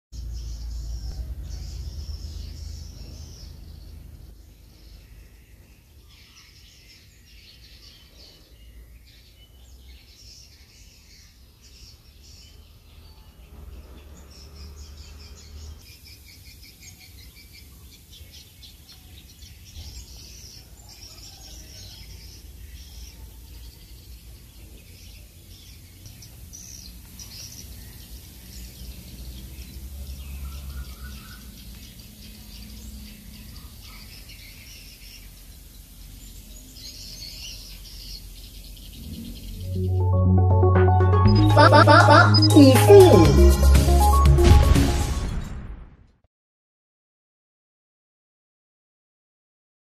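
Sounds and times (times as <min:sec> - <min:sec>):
birds chirping and twittering: 0:00.2 - 0:39.8.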